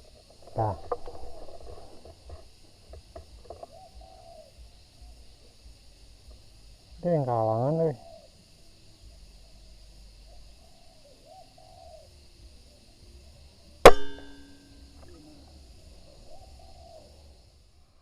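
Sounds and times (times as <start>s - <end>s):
soft bird calls: 0.0s - 6.1s, 7.0s - 17.6s
faint insect buzz: 0.0s - 18.0s
air rifle shot: 13.9s - 14.5s.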